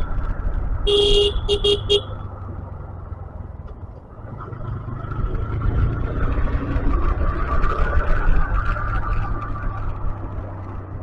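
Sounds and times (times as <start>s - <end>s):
motorcycle engine rumble: 0.0s - 11.0s
motorcycle horn beeps: 0.9s - 2.2s.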